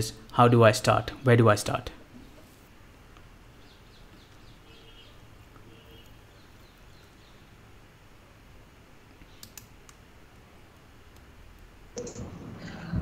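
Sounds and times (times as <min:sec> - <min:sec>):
room hum: 0:00.0 - 0:13.0
faint bird chirps: 0:03.5 - 0:07.5
computer mouse clicks: 0:09.2 - 0:10.0, 0:11.1 - 0:12.4.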